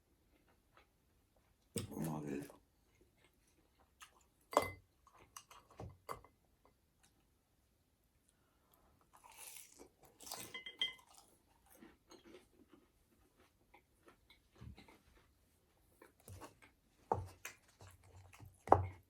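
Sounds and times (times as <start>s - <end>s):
person chewing noodles: 3.0s - 4.5s, 9.0s - 15.3s, 16.0s - 18.7s.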